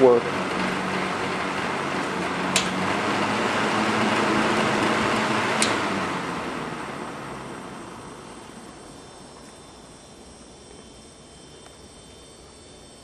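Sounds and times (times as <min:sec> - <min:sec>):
fan air rushing: 0:00.0 - 0:13.0
fan switch clicks: 0:02.5 - 0:02.8, 0:05.6 - 0:05.9.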